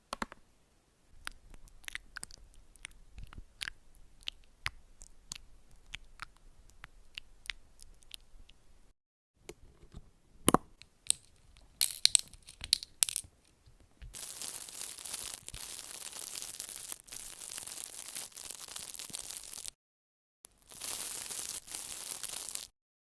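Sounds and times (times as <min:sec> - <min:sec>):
crackling hiss: 0:14.1 - 0:19.8, 0:20.5 - 0:22.7.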